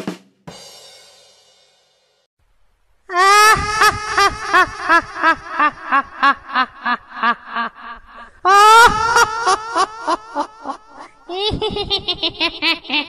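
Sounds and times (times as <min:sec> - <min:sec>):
comedy laugh sound effect: 0:03.1 - 0:13.0.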